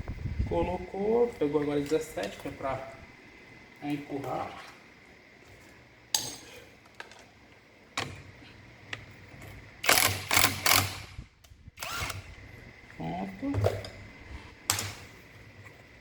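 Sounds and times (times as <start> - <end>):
wrench clicking and clanking: 9.8 - 11.1.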